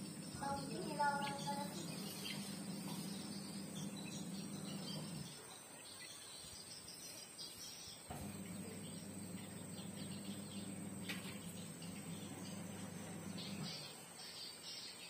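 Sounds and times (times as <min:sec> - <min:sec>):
low steady hum: 0:00.0 - 0:05.3, 0:08.1 - 0:13.9
faint bird chirps: 0:00.0 - 0:15.0.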